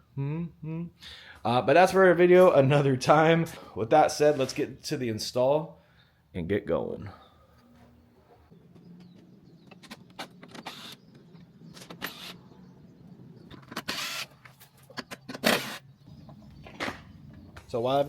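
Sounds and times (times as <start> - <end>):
power tool whirring: 9.7 - 12.5, 13.6 - 14.6, 15.2 - 15.9.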